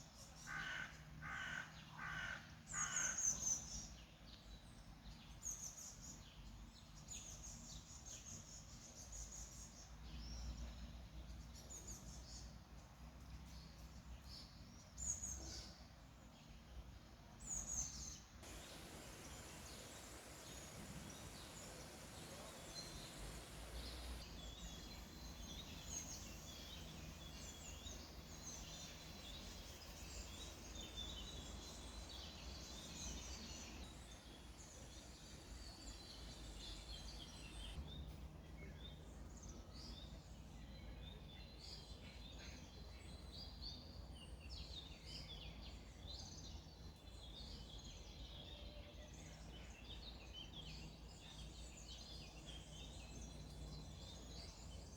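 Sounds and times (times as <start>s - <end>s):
faint outdoor rush: 17.2s - 54.9s
sweeping bird calls: 17.8s - 37.8s
birds chirping and trilling: 17.8s - 37.9s.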